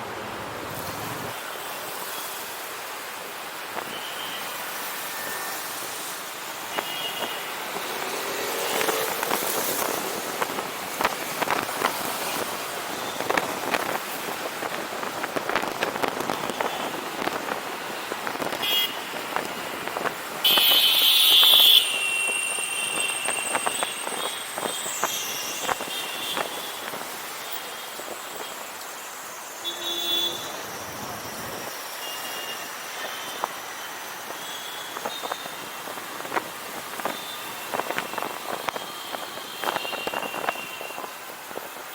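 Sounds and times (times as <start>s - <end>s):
road and wind noise: 0.0s - 41.9s
vehicle horns honking: 18.6s - 19.7s, 20.4s - 27.0s, 29.6s - 30.6s, 37.1s - 41.1s.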